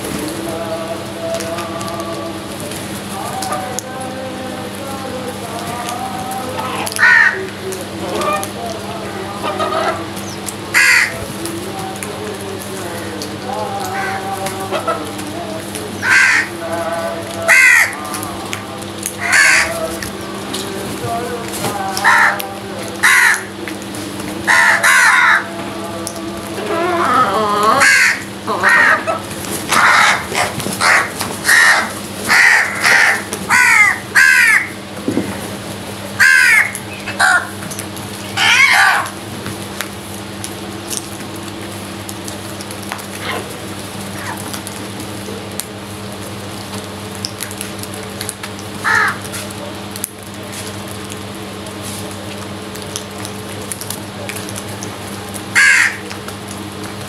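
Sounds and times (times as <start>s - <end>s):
steady low hum: 0.0s - 57.0s
crows cawing: 6.8s - 7.4s, 10.7s - 11.2s, 16.0s - 16.6s, 17.4s - 18.2s, 19.2s - 19.9s, 22.0s - 22.4s, 23.0s - 23.5s, 24.5s - 25.5s, 27.6s - 34.8s, 36.2s - 37.5s, 48.8s - 49.3s, 55.5s - 56.1s.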